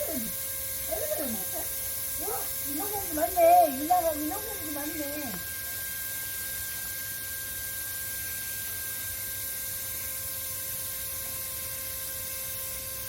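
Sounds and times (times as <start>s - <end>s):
faint whining tones: 0.0s - 6.4s
steady hum and hiss: 0.0s - 13.0s.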